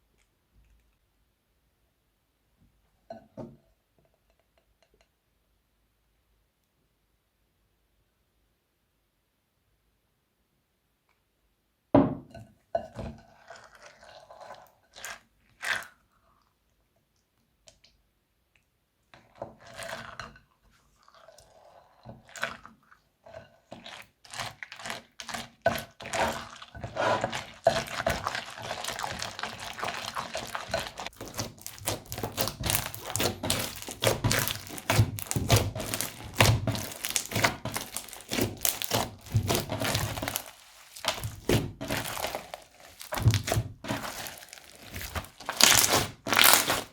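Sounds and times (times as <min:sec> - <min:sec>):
crunchy slime crackling: 0:24.5 - 0:46.9.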